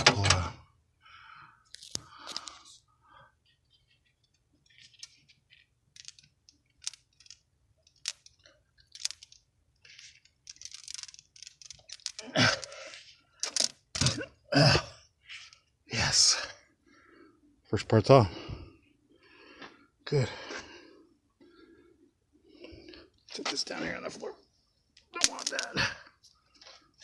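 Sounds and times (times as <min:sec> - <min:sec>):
hands and pliers clicking and scraping: 0:03.7 - 0:14.2, 0:24.9 - 0:26.8.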